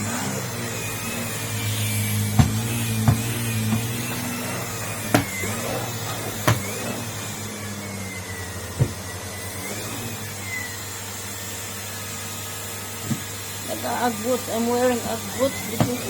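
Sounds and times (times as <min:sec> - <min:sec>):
vacuum cleaner motor whine: 0:00.0 - 0:16.0
sharp knocks: 0:02.3 - 0:04.1.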